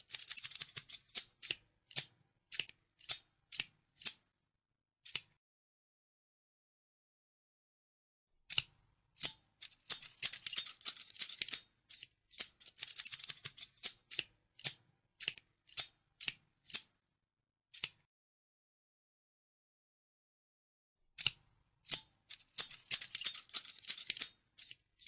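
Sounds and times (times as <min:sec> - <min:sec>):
scissors snipping: 0:00.1 - 0:04.2, 0:05.1 - 0:05.4, 0:08.5 - 0:16.9, 0:17.7 - 0:18.1, 0:21.2 - 0:24.8.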